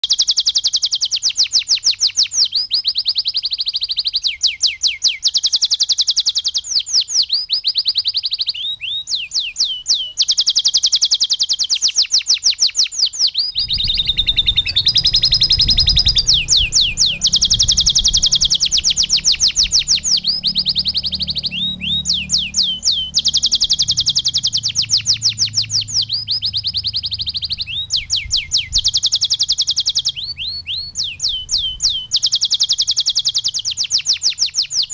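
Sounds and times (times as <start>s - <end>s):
canary singing trills: 0.0s - 34.9s
low rumble: 13.6s - 28.9s.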